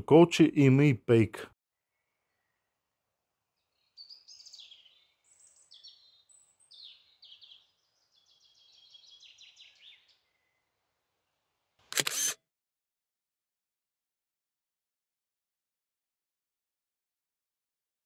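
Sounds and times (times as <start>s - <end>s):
songbird chirping and trilling: 3.6s - 10.7s.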